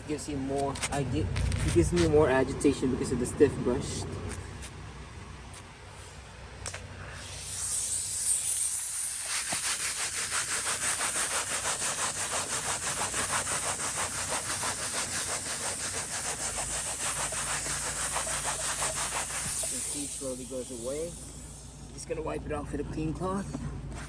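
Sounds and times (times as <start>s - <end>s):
steam hissing: 7.0s - 22.2s
brush scrubbing: 9.1s - 21.6s.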